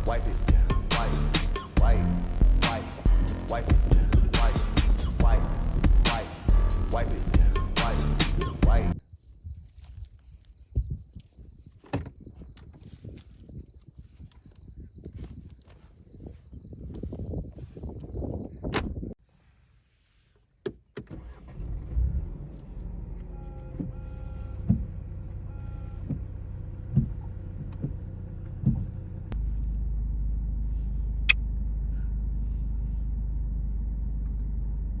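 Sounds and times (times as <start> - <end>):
low engine rumble: 0.0 - 9.0, 21.2 - 35.0
dull thumps: 26.9 - 28.0, 28.6 - 29.0.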